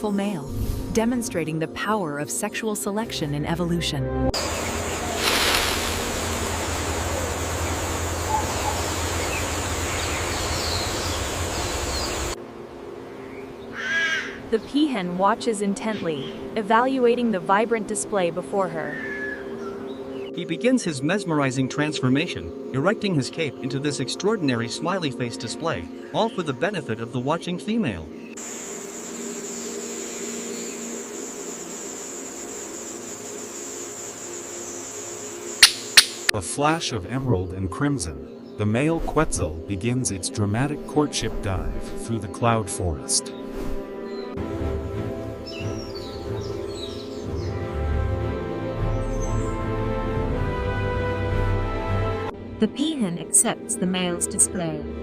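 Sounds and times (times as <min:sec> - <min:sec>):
low hum: 0:04.3 - 0:13.6
high-pitched insect drone: 0:04.4 - 0:12.4, 0:28.4 - 0:36.3
outdoor ambience hiss: 0:04.4 - 0:15.5, 0:28.1 - 0:36.8
sharp clicks: 0:35.6 - 0:36.3.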